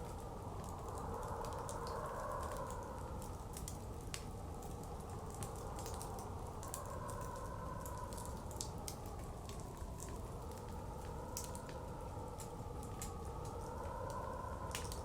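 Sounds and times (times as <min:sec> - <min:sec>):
blizzard wind rushing: 0:00.0 - 0:15.0
wood fire crackling and popping: 0:03.2 - 0:15.0.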